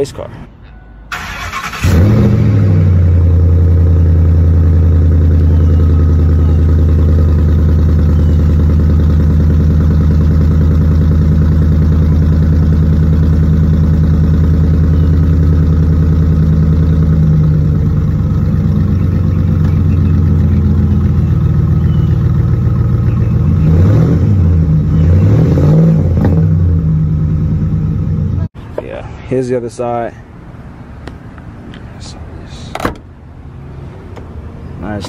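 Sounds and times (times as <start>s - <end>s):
pickup truck engine revving: 1.2s - 28.5s.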